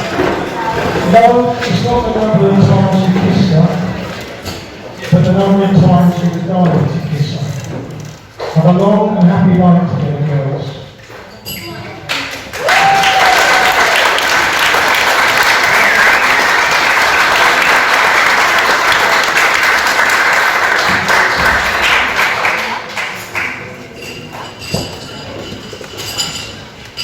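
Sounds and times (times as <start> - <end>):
crowd applauding: 12.1 - 23.8.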